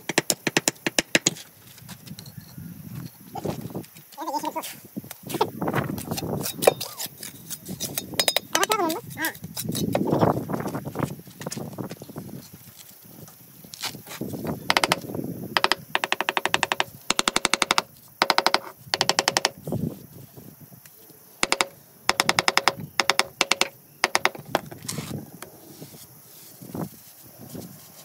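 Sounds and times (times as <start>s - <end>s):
rapid hammering with ringing: 21.4s - 24.4s.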